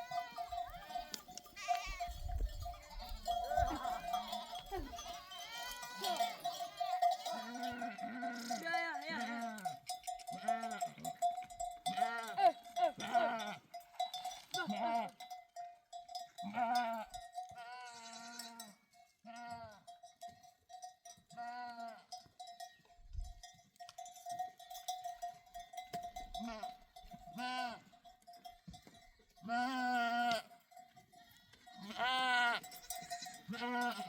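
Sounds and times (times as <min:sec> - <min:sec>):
sheep bleating: 0:00.0 - 0:11.2, 0:11.8 - 0:13.8, 0:14.4 - 0:15.2, 0:16.4 - 0:19.9, 0:21.3 - 0:22.2, 0:26.3 - 0:28.0, 0:29.4 - 0:30.6, 0:31.2 - 0:34.0
livestock bells ringing: 0:00.0 - 0:34.0.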